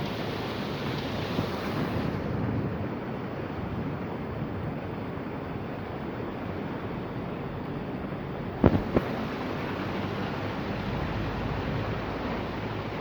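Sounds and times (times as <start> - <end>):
heavy rain falling: 0.0 - 3.5, 8.6 - 13.0.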